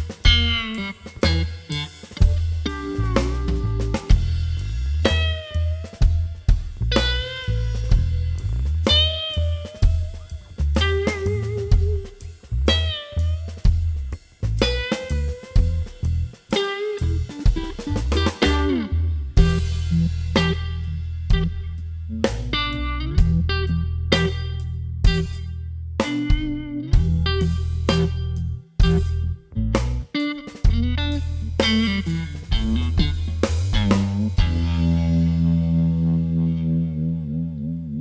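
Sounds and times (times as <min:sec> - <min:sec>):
electric guitar with tremolo: 0:00.0 - 0:13.6, 0:14.6 - 0:21.6, 0:22.4 - 0:29.3, 0:30.1 - 0:38.0
drum kit: 0:00.0 - 0:36.5
pulsing low end: 0:34.1 - 0:38.0.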